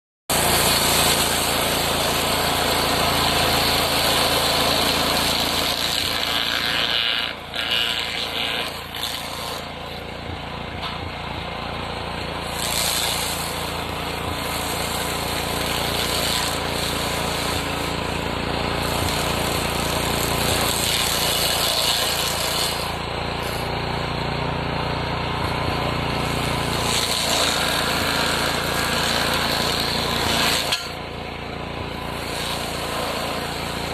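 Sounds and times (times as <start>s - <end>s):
cutter wheel grinding wood: 0.3s - 33.9s
stump grinder engine running: 0.3s - 33.9s.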